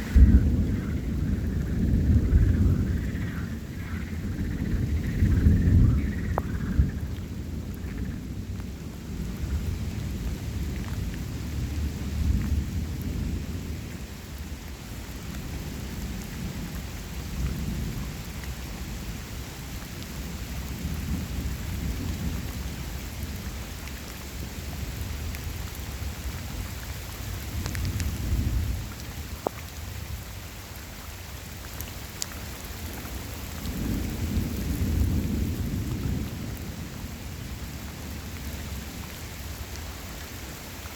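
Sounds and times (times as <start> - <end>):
low rolling thunder: 0.0 - 14.5, 27.5 - 30.1, 33.4 - 39.7
steady rain falling: 0.0 - 40.9.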